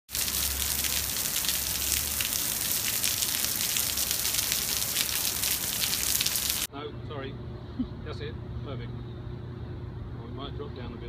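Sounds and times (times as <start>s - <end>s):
heavy rain on road: 0.1s - 6.7s.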